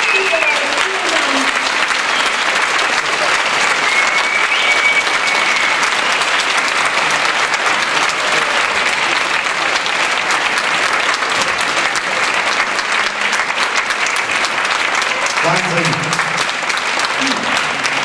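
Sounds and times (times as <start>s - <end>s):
audience applauding: 0.0s - 18.0s
held whistle: 3.8s - 6.4s.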